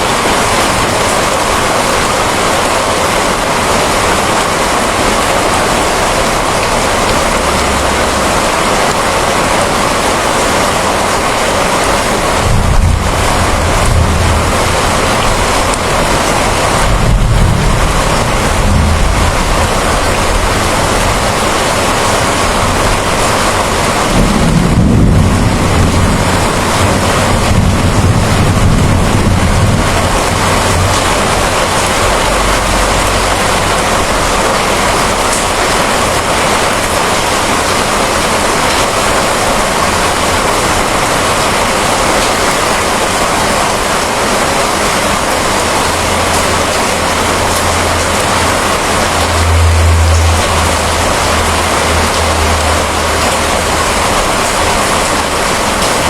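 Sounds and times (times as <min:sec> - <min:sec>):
heavy rain: 0:00.0 - 0:56.0
low rolling thunder: 0:04.4 - 0:39.0.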